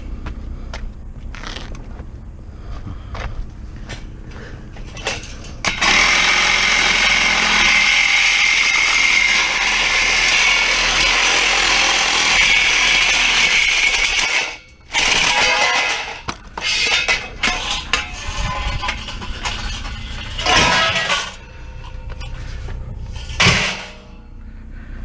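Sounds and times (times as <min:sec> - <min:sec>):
power tool whining: 0:05.6 - 0:24.1.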